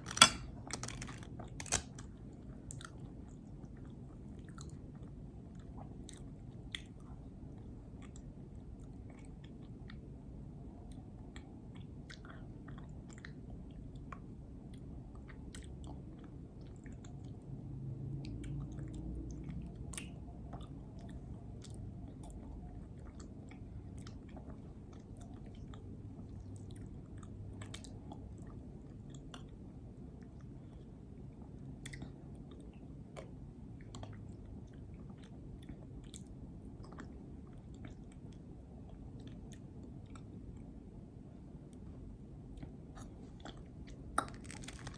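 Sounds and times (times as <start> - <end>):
person chewing a sandwich: 20.0 - 40.9, 41.6 - 44.9.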